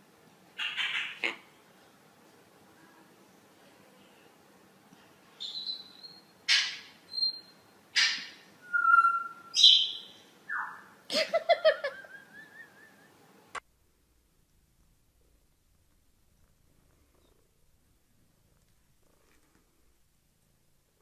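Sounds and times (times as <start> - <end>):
parrot squawking: 0.6 - 1.5, 5.5 - 7.4, 8.0 - 10.9
parrot whistling: 5.4 - 10.9.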